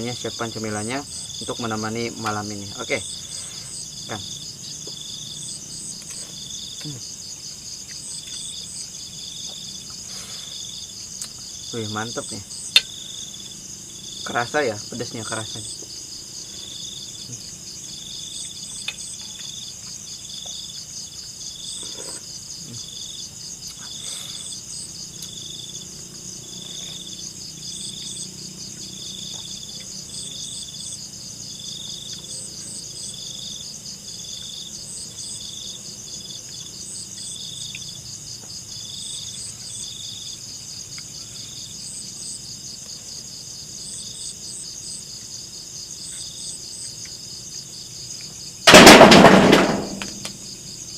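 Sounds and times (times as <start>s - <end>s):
crickets trilling: 0.0s - 50.9s
pulsing insect call: 0.0s - 50.9s
short cricket chirps: 0.0s - 50.9s.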